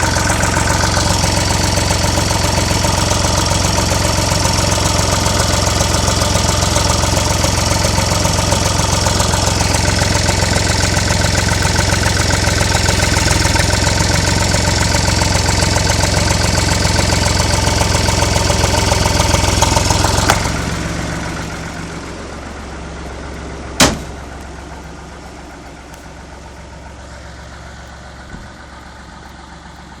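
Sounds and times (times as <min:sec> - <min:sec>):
diesel tractor engine running: 0:00.0 - 0:30.0
low hum: 0:19.0 - 0:30.0
sharp knock: 0:23.8 - 0:24.2.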